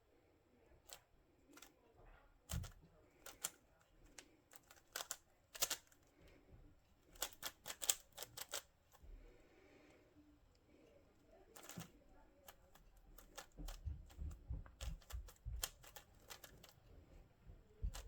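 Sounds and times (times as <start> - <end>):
twisty puzzle clicking: 2.5 - 6.0, 7.1 - 8.7, 11.6 - 11.9, 14.8 - 16.8.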